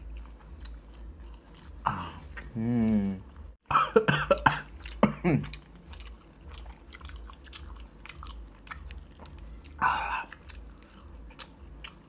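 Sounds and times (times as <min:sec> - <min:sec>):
chewing clicks and smacks: 0:00.0 - 0:02.5, 0:04.6 - 0:12.0
person speaking: 0:02.0 - 0:03.3.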